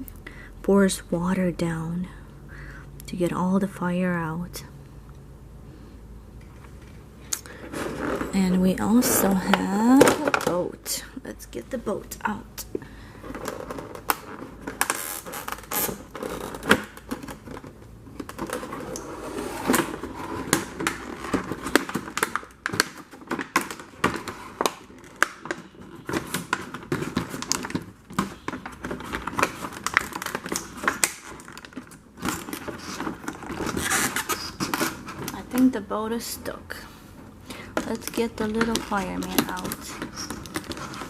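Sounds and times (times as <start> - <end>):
plastic packaging crinkling and clicking: 12.6 - 35.8, 37.5 - 41.0.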